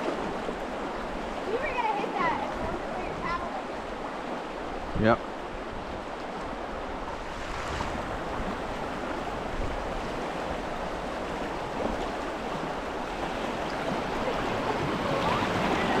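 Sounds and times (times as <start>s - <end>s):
river water rushing: 6.0s - 16.0s.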